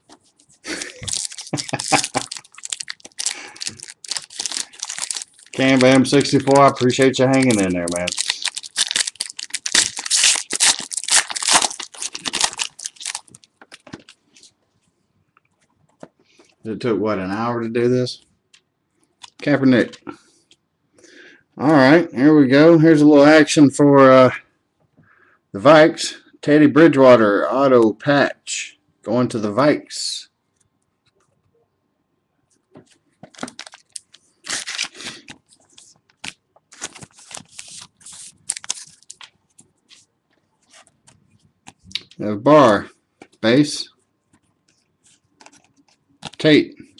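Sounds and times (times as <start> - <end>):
cards being handled: 0.0 - 14.5, 32.8 - 42.2, 44.3 - 46.4
foil wrapper tearing and crinkling: 0.7 - 14.2, 33.3 - 35.4, 36.1 - 39.3, 45.4 - 46.4.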